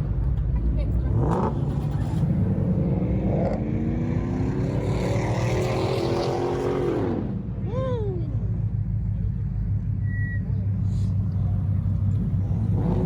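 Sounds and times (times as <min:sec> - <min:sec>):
car engine accelerating: 0:00.0 - 0:07.5, 0:10.5 - 0:13.0.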